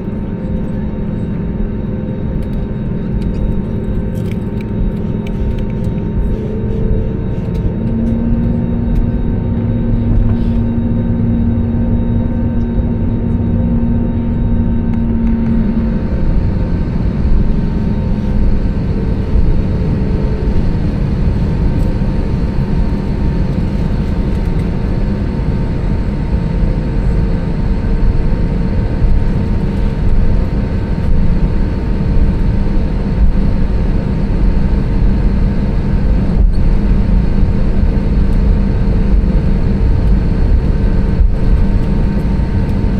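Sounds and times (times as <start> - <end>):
aircraft cabin engine rumble: 0.0 - 42.9
steady hum: 0.0 - 42.9.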